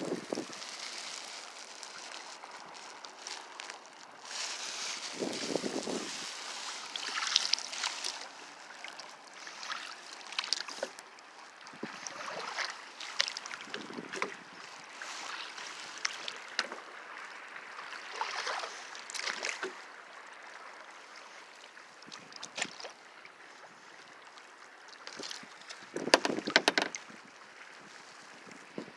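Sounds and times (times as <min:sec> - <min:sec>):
kayak paddle splashing: 0:00.1 - 0:19.9
steady water hiss: 0:04.1 - 0:26.9.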